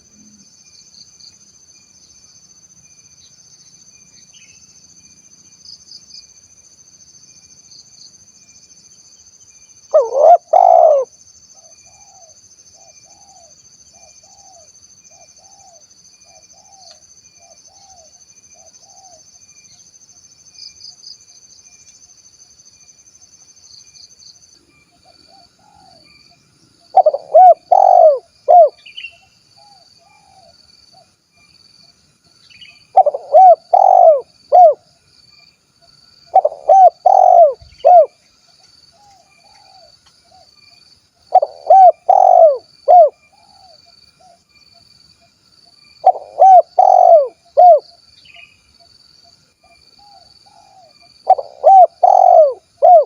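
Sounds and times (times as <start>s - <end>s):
dove cooing: 9.9s - 11.1s, 26.9s - 28.8s, 32.9s - 34.8s, 36.3s - 38.1s, 41.3s - 44.4s, 46.0s - 47.8s, 50.0s - 53.0s
high-pitched insect drone: 40.5s - 53.0s.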